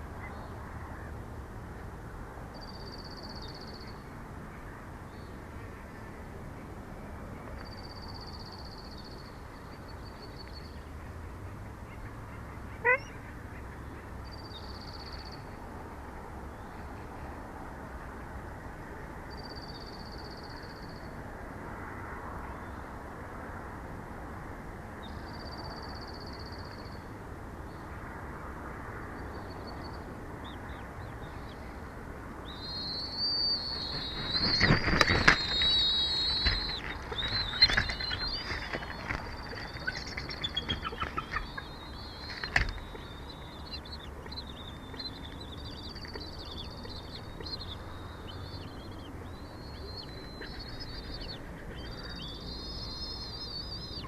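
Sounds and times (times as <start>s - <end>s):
high wavering bird calls: 32.4s - 54.0s
wind on microphone: 33.6s - 40.2s
wingbeats and knocks: 34.0s - 41.4s.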